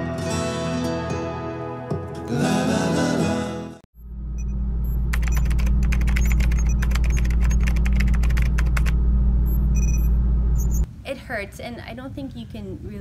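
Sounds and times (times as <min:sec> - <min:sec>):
keyboard keys clicking: 0:05.1 - 0:08.9
loud steady low drone: 0:08.8 - 0:10.6.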